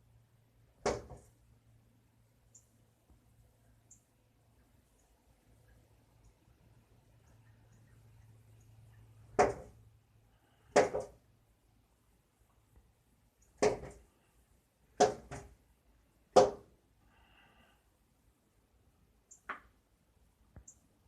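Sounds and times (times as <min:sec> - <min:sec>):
bird striking window pane: 0:00.8 - 0:01.3, 0:09.2 - 0:09.8, 0:10.7 - 0:11.2, 0:13.6 - 0:14.0, 0:15.0 - 0:15.6, 0:16.3 - 0:16.7.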